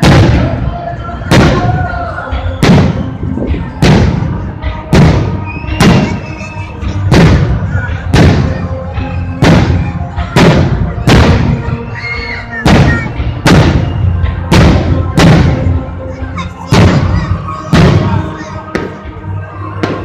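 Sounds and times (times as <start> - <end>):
fireworks bursting: 0.0 - 0.5, 2.6 - 8.7, 9.3 - 11.9, 12.6 - 15.8, 16.6 - 19.0
music playing: 0.0 - 20.0.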